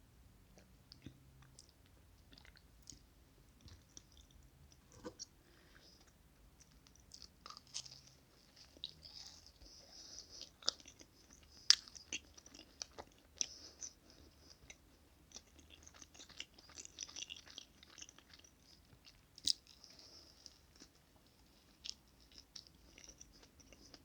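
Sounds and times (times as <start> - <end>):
chewing with wet mouth smacks: 6.0 - 24.0.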